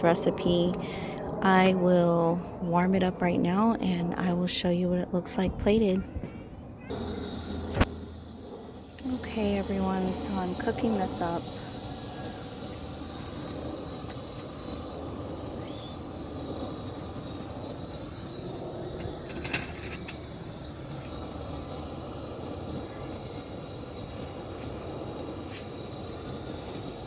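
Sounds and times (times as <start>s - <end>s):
food warming in a pan: 6.9s - 27.0s.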